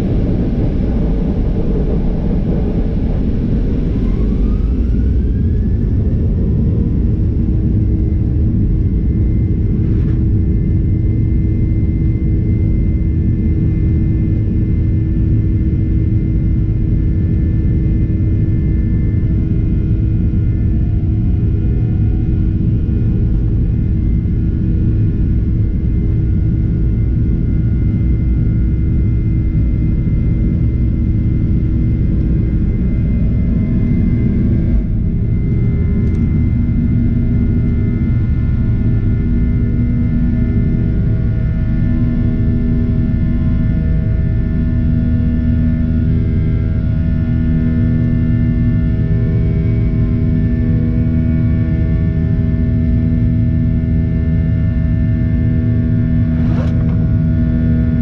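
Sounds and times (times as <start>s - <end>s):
engine whining tones: 0.0s - 10.3s, 55.9s - 57.9s
jet engines rumbling: 0.0s - 52.7s, 53.3s - 58.0s.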